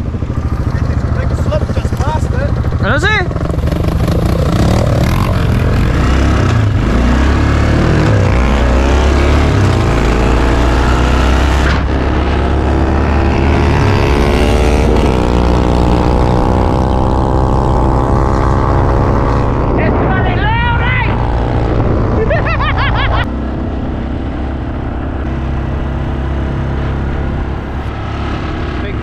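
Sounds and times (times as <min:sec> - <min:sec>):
quad bike engine running: 0:00.0 - 0:20.0.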